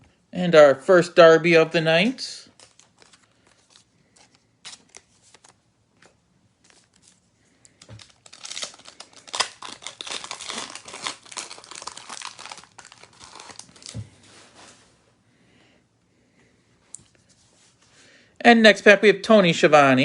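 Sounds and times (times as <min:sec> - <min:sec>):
foil wrapper crinkling: 0:02.5 - 0:14.0.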